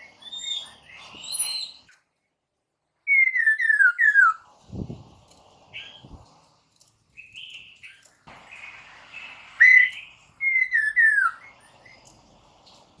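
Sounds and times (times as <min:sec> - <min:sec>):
bird whistling song: 0:00.0 - 0:02.0, 0:03.1 - 0:04.4, 0:07.2 - 0:12.1.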